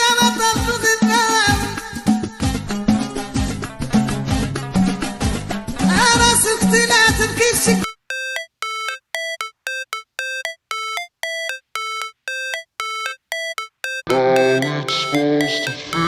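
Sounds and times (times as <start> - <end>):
electronic beeping melody: 7.8 - 16.0
song playing: 7.8 - 16.0
loud song: 14.0 - 16.0.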